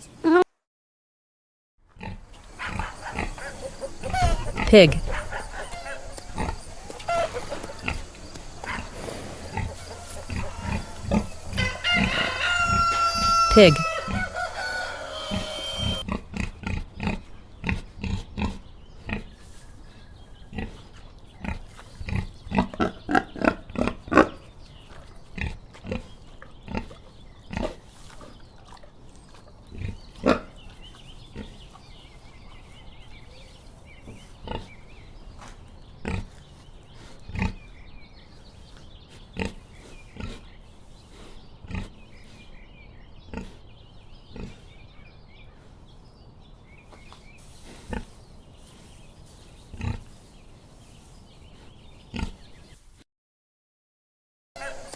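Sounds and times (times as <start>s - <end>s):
pig grunting: 2.0s - 19.4s, 20.5s - 32.0s, 36.0s - 37.8s, 41.7s - 42.0s, 43.2s - 43.6s.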